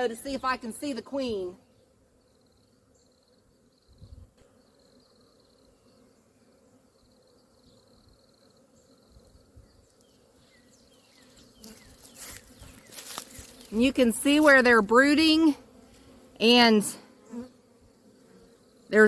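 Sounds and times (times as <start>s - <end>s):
bees buzzing: 0.0s - 19.0s
rustling: 11.2s - 14.7s.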